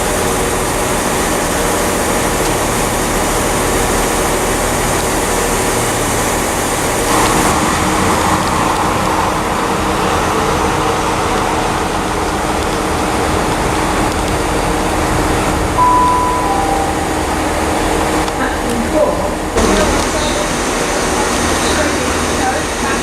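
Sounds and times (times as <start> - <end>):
train rumbling: 0.0 - 23.0
short high tones: 15.8 - 18.0.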